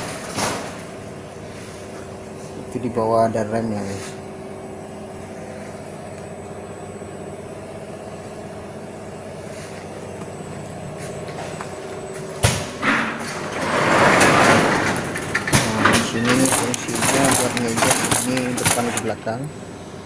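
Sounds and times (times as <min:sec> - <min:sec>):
machine motor hum: 0:00.0 - 0:20.0.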